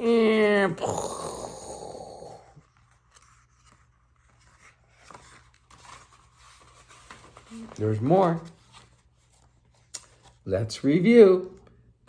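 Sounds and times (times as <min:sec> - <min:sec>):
paper pages rustling: 0:02.6 - 0:10.5.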